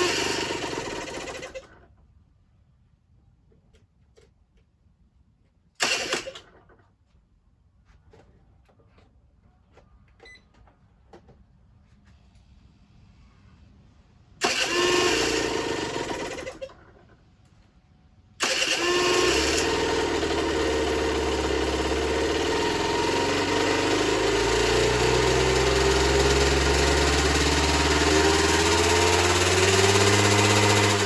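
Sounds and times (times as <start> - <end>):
two-stroke engine running: 0.0 - 1.8, 5.8 - 6.6, 14.4 - 17.0, 18.4 - 31.0.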